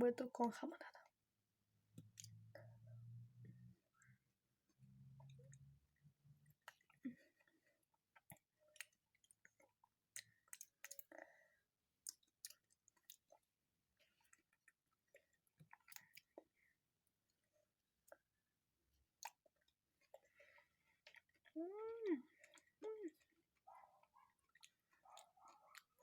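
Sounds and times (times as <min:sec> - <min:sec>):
lip smacks while chewing: 0:06.5 - 0:11.2, 0:12.0 - 0:16.6, 0:19.1 - 0:21.6, 0:22.3 - 0:26.0.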